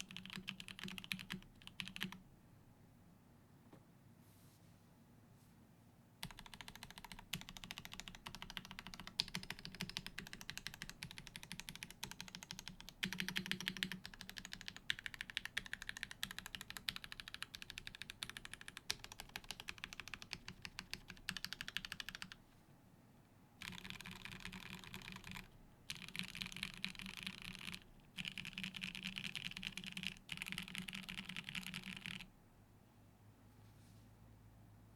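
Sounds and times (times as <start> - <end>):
mechanical keyboard typing: 0.0 - 2.2, 6.2 - 22.4, 23.6 - 32.3.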